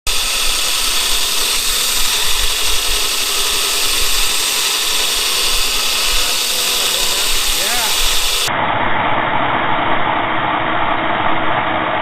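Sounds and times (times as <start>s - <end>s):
power tool hissing: 0.0s - 8.5s
faint motor hum: 0.0s - 12.0s.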